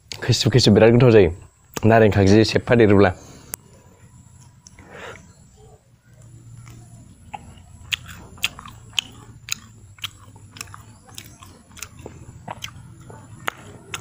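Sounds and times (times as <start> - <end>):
person chewing crunchy food: 6.2 - 14.0.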